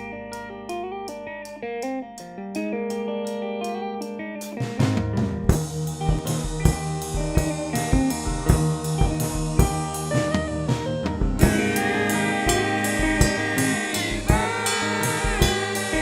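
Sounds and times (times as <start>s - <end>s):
electric guitar: 0.0s - 16.0s
drum kit beat: 4.6s - 16.0s.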